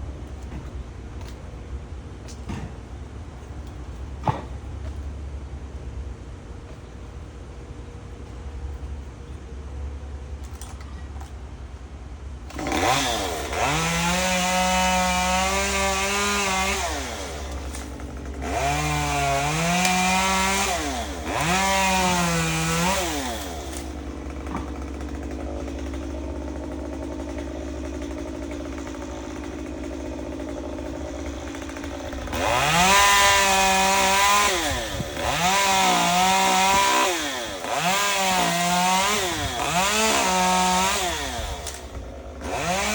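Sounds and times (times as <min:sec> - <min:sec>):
chainsaw engine revving and idling: 0:12.5 - 0:42.9.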